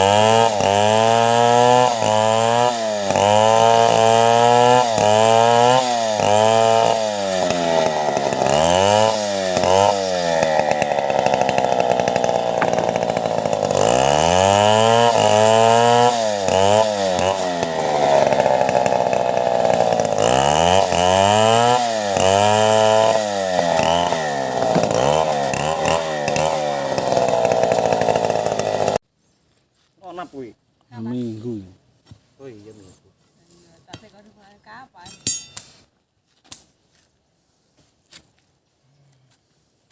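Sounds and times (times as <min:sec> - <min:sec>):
chainsaw cutting timber: 0:00.0 - 0:29.0.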